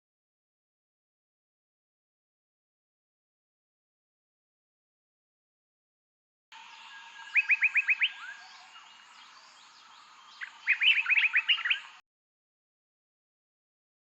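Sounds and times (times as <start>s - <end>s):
songbird singing: 6.5s - 12.0s
faint bird chorus: 6.6s - 12.0s.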